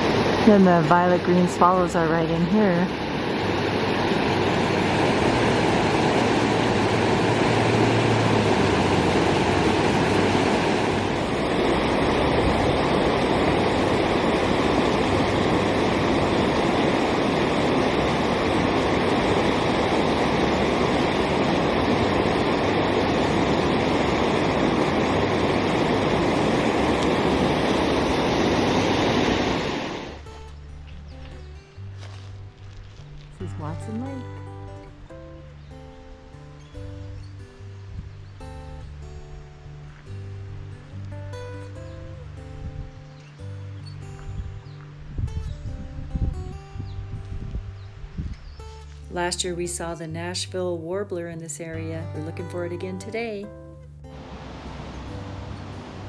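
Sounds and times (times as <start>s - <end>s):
rushing water: 0.0s - 33.2s, 48.2s - 56.0s.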